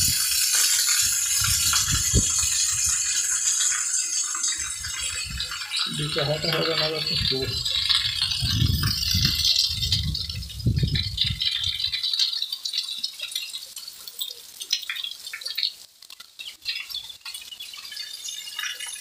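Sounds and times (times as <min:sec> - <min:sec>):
wind buffeting microphone: 0:00.0 - 0:03.2, 0:04.6 - 0:12.0
heavy rain falling: 0:00.0 - 0:13.4.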